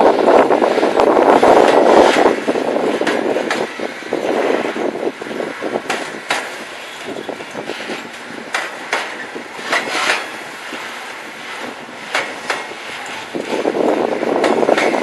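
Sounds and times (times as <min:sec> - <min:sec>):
train wheels clacking over rail joints: 0:00.0 - 0:15.0.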